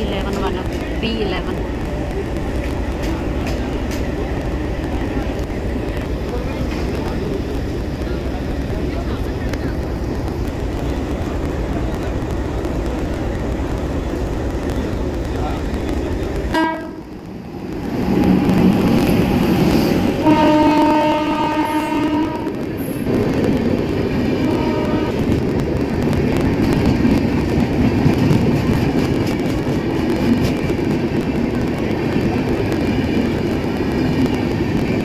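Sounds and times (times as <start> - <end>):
train rumbling on rails: 0.0 - 35.0
train horn: 16.5 - 17.1, 20.2 - 22.6, 24.4 - 25.3.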